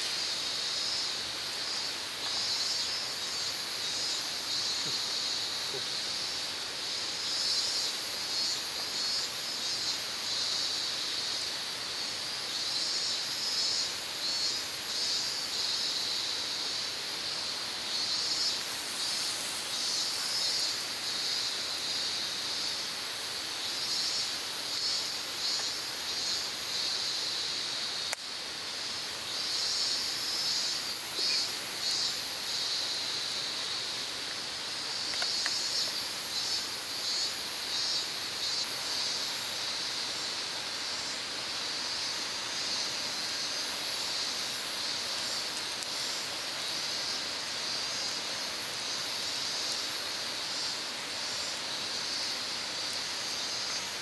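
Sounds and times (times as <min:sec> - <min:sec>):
insects chirring: 0:00.0 - 0:54.0
click: 0:35.1 - 0:35.6.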